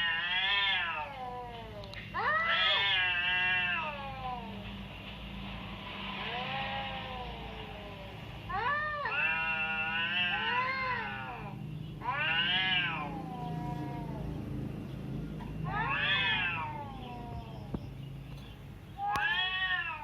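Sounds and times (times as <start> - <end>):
cat meowing: 0.0 - 4.6, 6.2 - 14.4, 15.6 - 17.8, 19.0 - 20.0.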